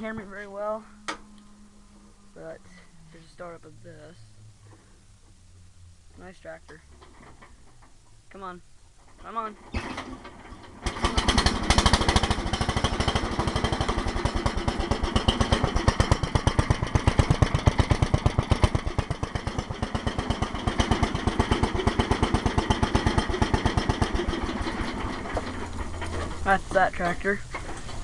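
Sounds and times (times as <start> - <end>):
garden tractor engine putter: 6.6 - 8.1, 9.0 - 28.0.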